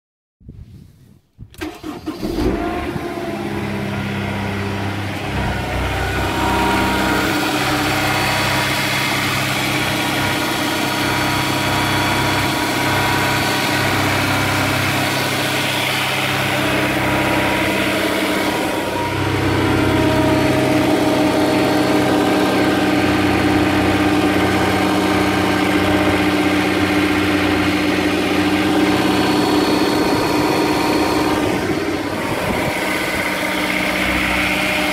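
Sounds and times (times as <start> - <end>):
car engine starting and idling: 1.4 - 34.9.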